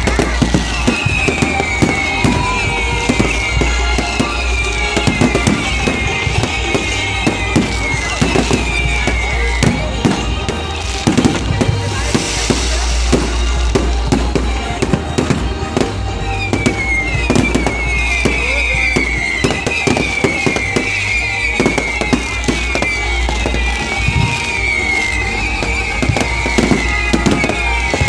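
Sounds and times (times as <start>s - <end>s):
firecrackers cracking and banging: 0.0s - 28.0s
high downward-sliding whistle: 0.0s - 28.0s
music: 0.0s - 28.0s.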